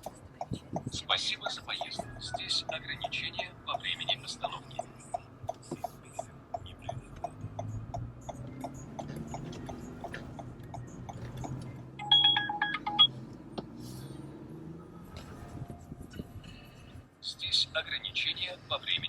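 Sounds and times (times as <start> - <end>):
turn-signal relay ticking: 0.0 - 13.1
short electronic beeps: 12.0 - 13.1
low cabin hum: 15.1 - 17.1.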